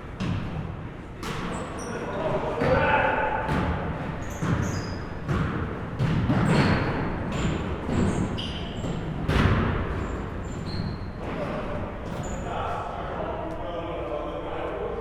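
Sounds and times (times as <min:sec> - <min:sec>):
basketballs bouncing on gym floor: 0:00.1 - 0:01.6, 0:02.6 - 0:12.4
sneaker squeaks: 0:01.2 - 0:12.8.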